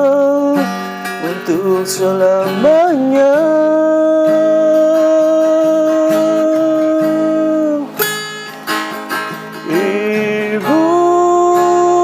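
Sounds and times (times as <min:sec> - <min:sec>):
plucked acoustic guitar: 0:00.0 - 0:12.0
person singing long note: 0:09.7 - 0:12.0.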